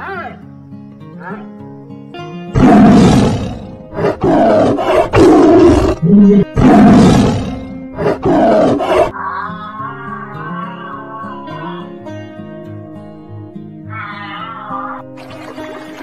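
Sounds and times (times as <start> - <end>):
background music: 0.0 - 16.0
big cat roaring and growling: 2.5 - 11.9.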